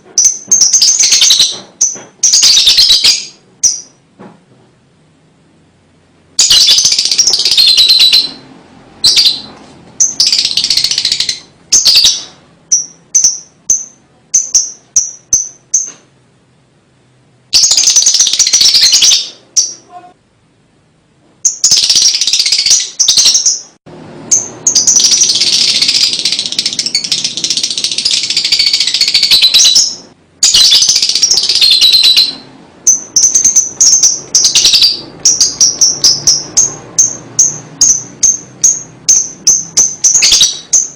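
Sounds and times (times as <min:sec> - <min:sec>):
lovebird short high chirps: 0:06.4 - 0:08.4, 0:09.0 - 0:16.0, 0:24.3 - 0:40.9.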